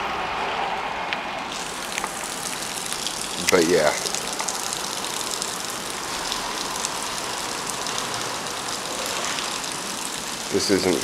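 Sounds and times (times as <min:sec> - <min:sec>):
steady rain falling: 0:01.4 - 0:11.0.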